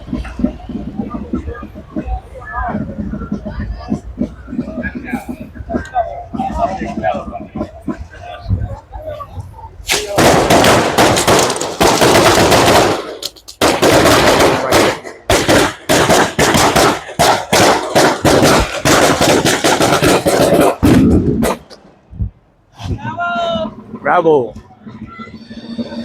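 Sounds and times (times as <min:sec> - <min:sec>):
rapid crackling bangs: 0:09.8 - 0:22.1.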